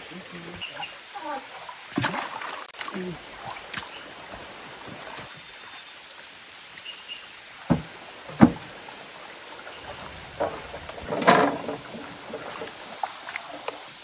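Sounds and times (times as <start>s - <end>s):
background hiss: 0.0s - 14.0s
sharp knocks: 7.7s - 8.7s.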